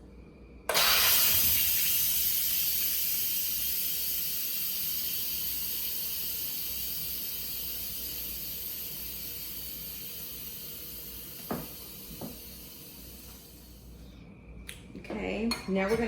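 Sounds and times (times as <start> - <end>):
pressure cooker steam hissing: 0.7 - 14.0.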